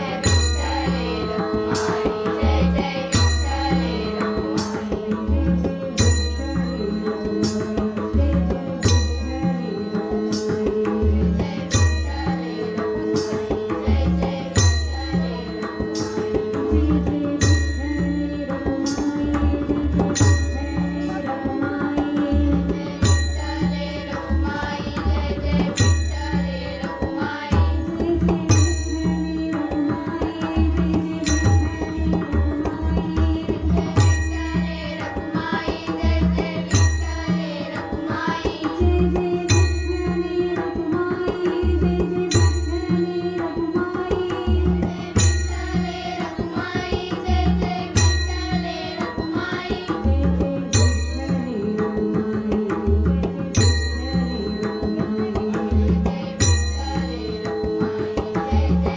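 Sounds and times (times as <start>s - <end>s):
hand drum rhythm: 0.0s - 58.9s.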